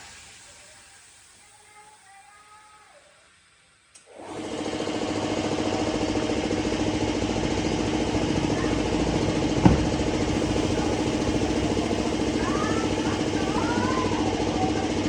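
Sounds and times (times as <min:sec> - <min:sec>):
engine idling: 0:04.6 - 0:15.0
short knock: 0:09.5 - 0:11.5.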